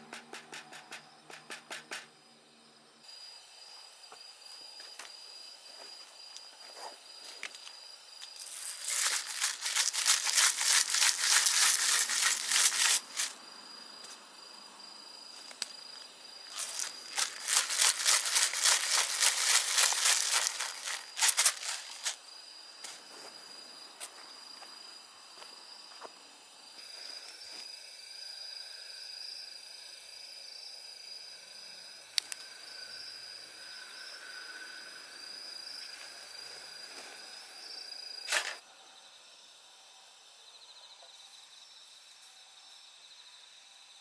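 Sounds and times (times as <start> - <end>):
crinkling and crumpling: 6.8 - 13.4, 15.4 - 22.2.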